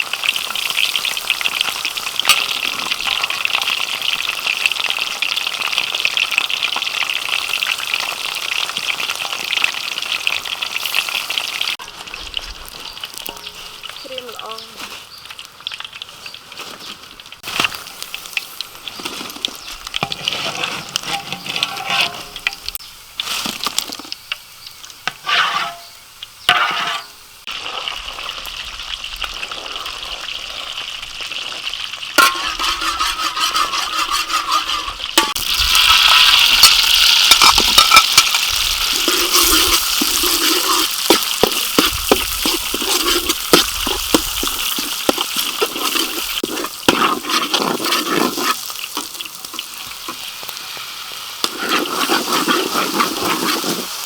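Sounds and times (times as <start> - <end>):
food sizzling in hot oil: 0.0 - 54.0
utensil stirring in pan: 0.2 - 4.4, 16.0 - 24.1, 25.0 - 27.2, 32.2 - 54.0.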